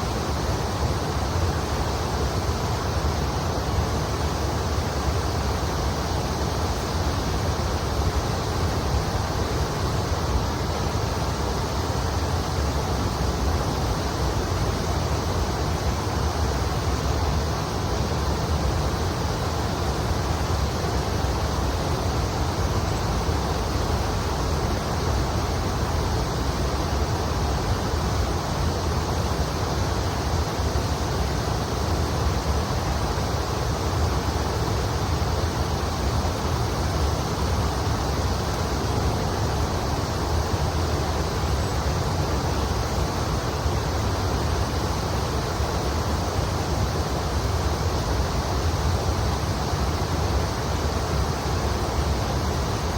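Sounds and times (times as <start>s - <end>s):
river water rushing: 0.0s - 52.9s.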